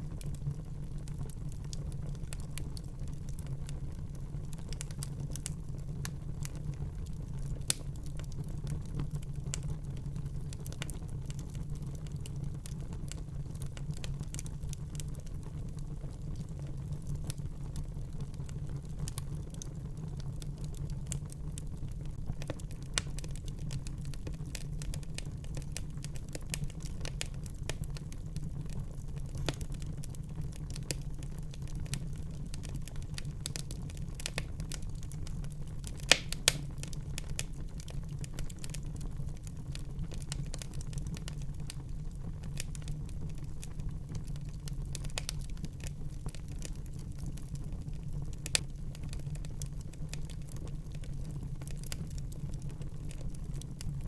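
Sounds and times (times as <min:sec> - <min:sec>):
fire crackling and snapping: 0:00.0 - 0:54.0
wood fire burning: 0:00.0 - 0:54.0
loud fire pops: 0:35.9 - 0:37.6.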